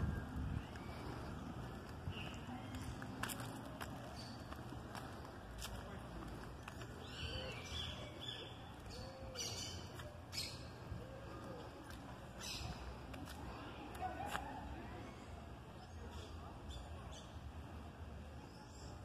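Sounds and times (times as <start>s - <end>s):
steady low rumble: 0.0s - 7.2s
birds chirping: 0.0s - 13.2s.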